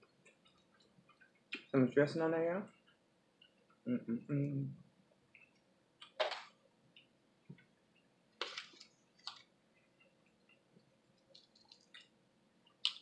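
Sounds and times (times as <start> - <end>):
person chewing with lip smacks: 11.2 - 12.1.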